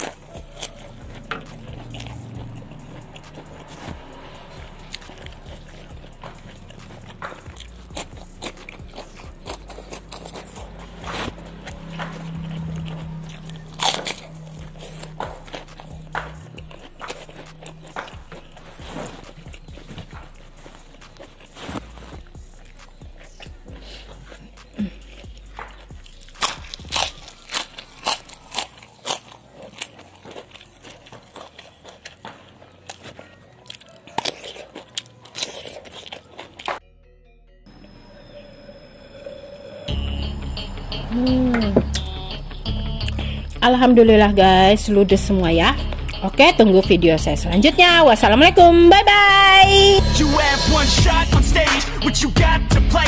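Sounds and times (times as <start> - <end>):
low steady hum: 0.0 - 28.8
wet chewing and crunching: 0.0 - 36.8.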